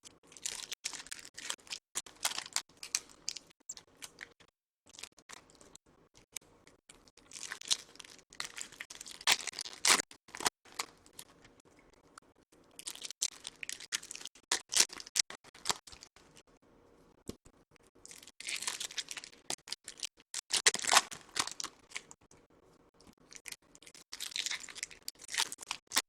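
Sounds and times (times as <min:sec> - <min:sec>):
foil wrappers torn and crinkled: 0:18.4 - 0:21.8.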